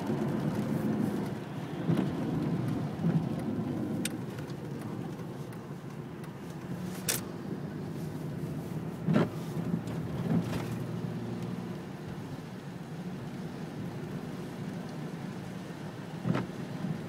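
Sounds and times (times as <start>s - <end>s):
raindrop taps: 0.0s - 6.8s
low vehicle hum: 0.0s - 17.0s.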